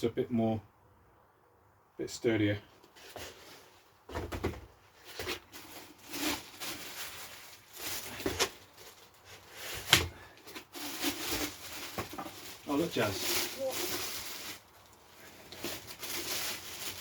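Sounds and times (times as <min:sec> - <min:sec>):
knocks and clatters of parts: 0:04.1 - 0:05.4
packing rustling: 0:05.0 - 0:17.0.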